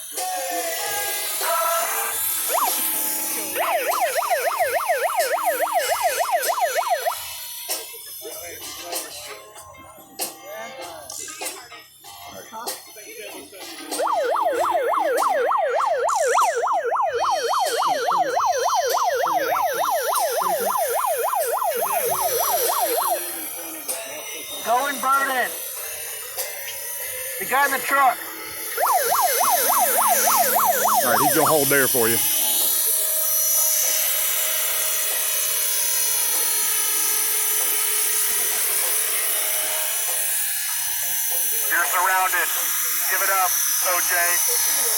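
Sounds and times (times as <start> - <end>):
model helicopter motor whine: 0.0 - 8.3, 13.9 - 44.9
police siren yelping: 0.8 - 7.5, 13.9 - 23.9, 28.6 - 33.1.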